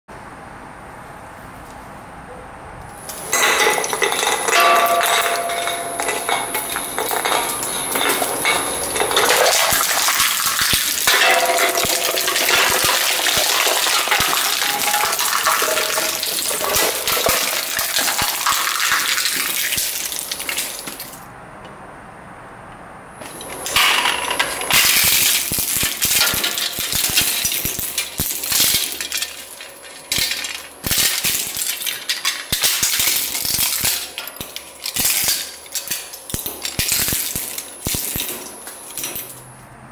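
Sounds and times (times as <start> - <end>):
shredder crunching metal can: 3.1 - 21.2, 23.2 - 39.3
plastic cracking in shredder: 7.4 - 21.2, 23.6 - 38.6.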